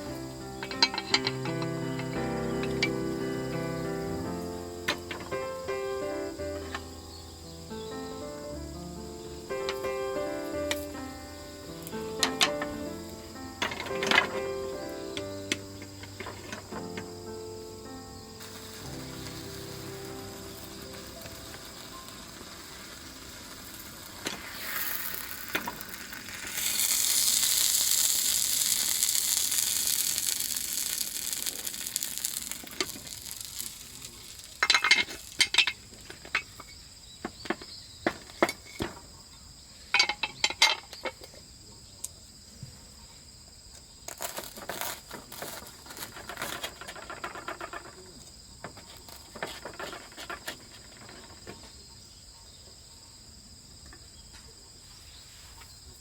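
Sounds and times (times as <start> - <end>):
metal cookware clattering: 0.0 - 7.1, 11.8 - 17.4, 29.4 - 39.0, 40.0 - 41.3
food sizzling in a pan: 0.0 - 36.6
crickets chirping: 0.0 - 56.0.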